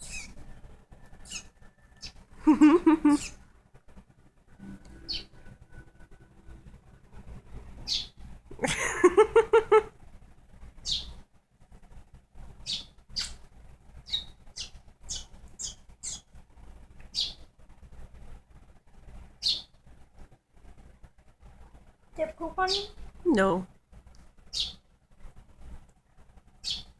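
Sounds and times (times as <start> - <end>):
baby bird cheeping: 0.0 - 3.4, 5.0 - 5.4, 7.8 - 8.2, 10.8 - 11.2, 12.6 - 16.3, 17.1 - 17.5, 19.4 - 19.8, 22.2 - 23.0, 24.5 - 24.8, 26.6 - 26.9
person's voice: 22.2 - 23.7.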